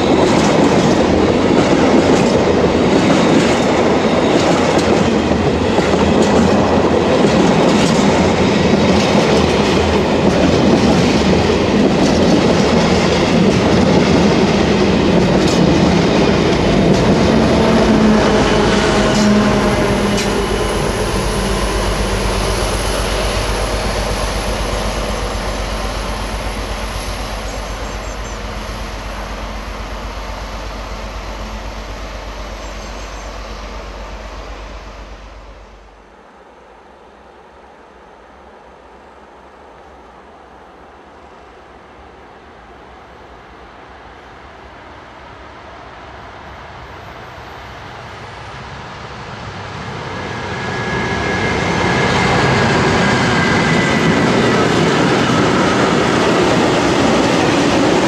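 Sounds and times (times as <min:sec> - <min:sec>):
train wheels clattering over rail joints: 0:00.0 - 0:21.6
diesel locomotive drone: 0:00.0 - 0:58.0.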